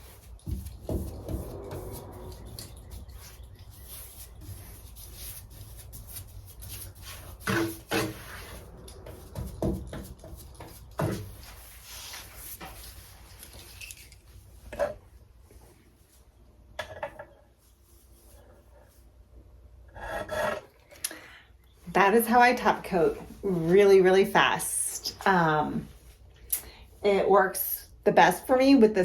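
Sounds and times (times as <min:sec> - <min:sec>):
brushing on wooden countertop: 0:00.0 - 0:13.9.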